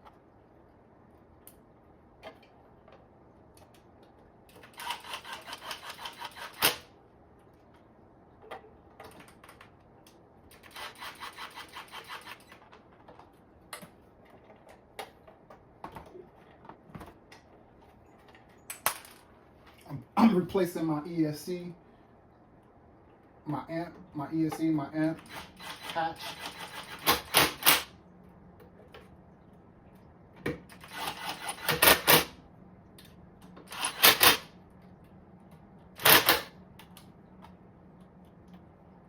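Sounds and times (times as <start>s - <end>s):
rapid ratcheting clicks: 4.5s - 6.8s, 10.5s - 12.7s.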